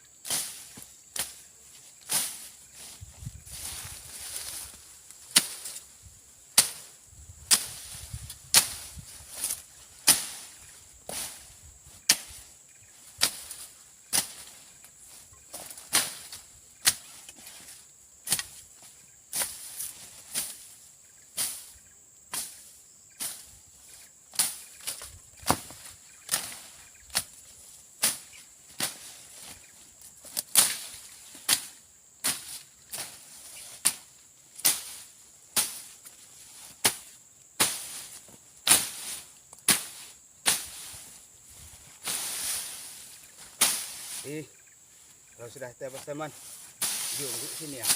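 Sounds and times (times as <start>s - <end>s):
machete chopping brush: 0.2s - 1.4s, 2.0s - 2.5s, 3.6s - 5.9s, 6.5s - 12.5s, 13.2s - 14.6s, 15.5s - 18.7s, 19.3s - 20.7s, 24.3s - 27.4s, 28.0s - 29.6s, 30.2s - 41.1s, 42.0s - 44.4s, 45.9s - 47.9s.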